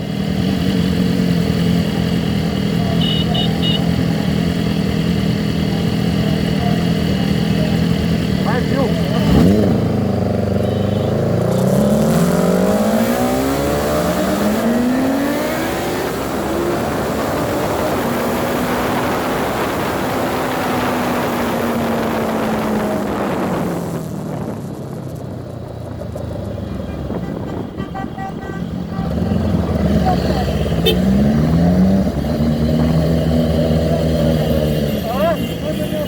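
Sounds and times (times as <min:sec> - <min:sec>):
motorcycle engine accelerating: 0:00.0 - 0:35.8
rushing wind: 0:11.2 - 0:34.9.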